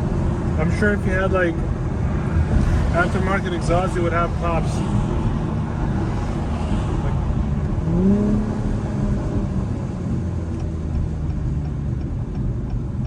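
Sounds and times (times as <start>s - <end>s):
car engine and exhaust: 0.0s - 13.0s
light even ticking: 10.5s - 13.0s.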